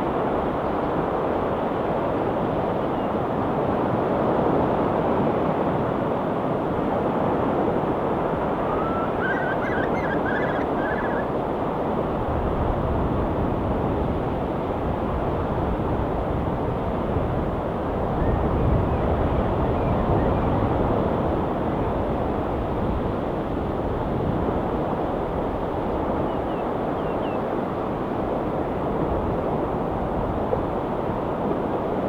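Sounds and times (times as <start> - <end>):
seagull calling: 8.5 - 11.3.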